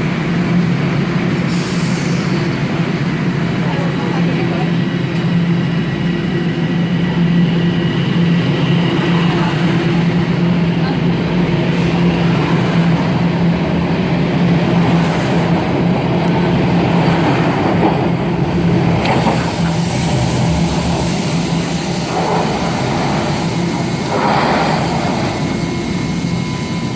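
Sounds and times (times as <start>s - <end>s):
subway train low hum: 0.0s - 26.9s
loud rushing noise: 18.1s - 26.9s.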